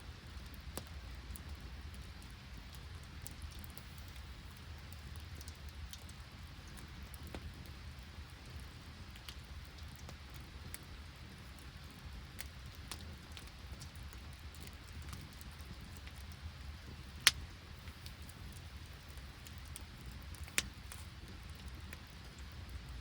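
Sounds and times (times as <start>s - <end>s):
steady rain: 0.0s - 23.0s
clicks of raindrops: 12.4s - 23.0s.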